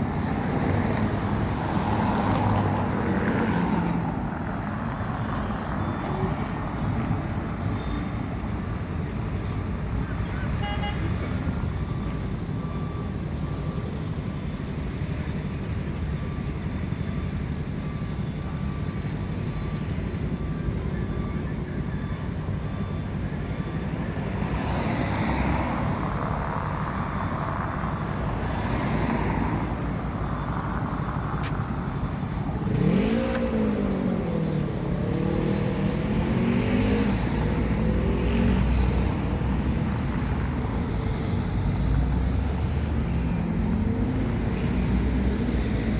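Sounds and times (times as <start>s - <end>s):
traffic engine rumble: 0.0s - 45.9s
engine revving: 32.6s - 38.8s.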